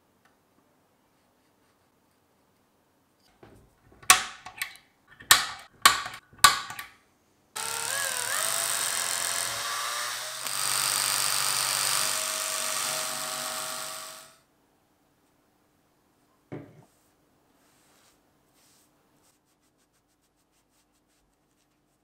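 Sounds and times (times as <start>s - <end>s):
sharp knocks: 5.2s - 6.9s
power tool motor running: 7.6s - 14.4s.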